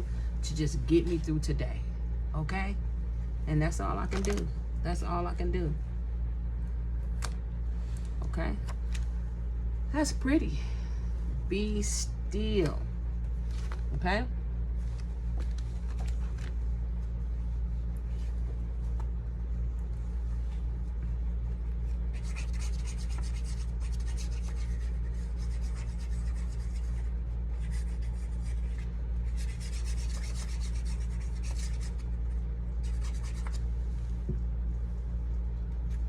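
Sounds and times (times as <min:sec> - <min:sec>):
steady low hum: 0:00.0 - 0:36.0
scratchy rubbing on card: 0:21.9 - 0:33.7.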